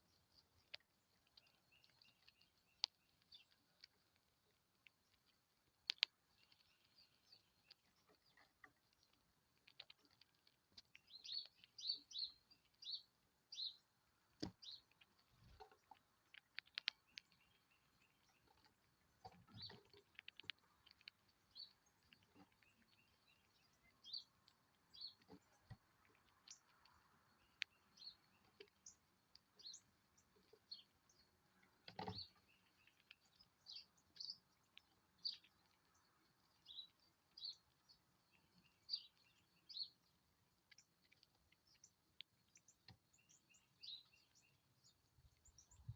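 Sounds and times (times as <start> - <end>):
small birds chirping: 0.0 - 45.9
sharp clicks: 14.3 - 17.6.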